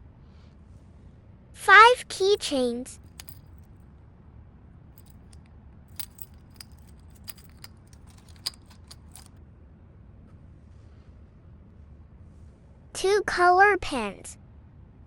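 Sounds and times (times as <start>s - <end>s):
keychains clinking and rattling: 3.0s - 3.7s, 5.0s - 9.4s.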